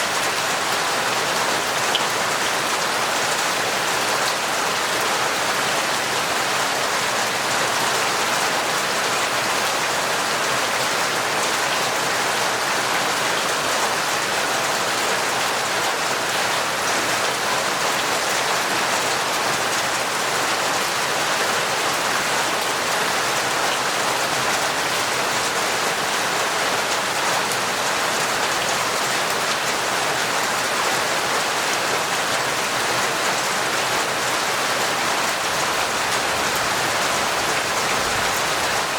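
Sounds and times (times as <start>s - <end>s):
heavy torrential rain: 0.0s - 38.9s.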